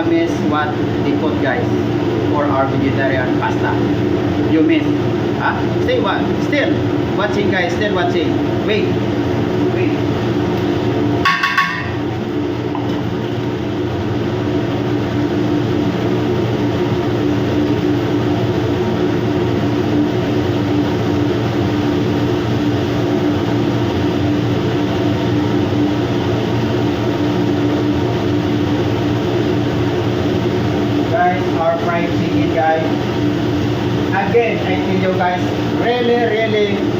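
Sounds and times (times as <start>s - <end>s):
ship engines and ventilation drone: 0.0s - 36.9s.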